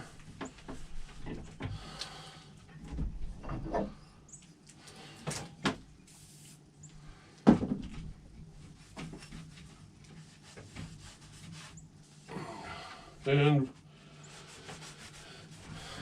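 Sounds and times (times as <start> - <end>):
spray can hiss: 6.1 - 6.6.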